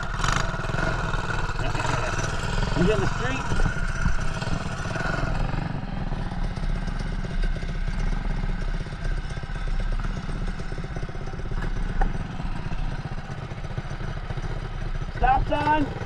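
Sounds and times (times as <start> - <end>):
small engine chugging: 0.0 - 16.0.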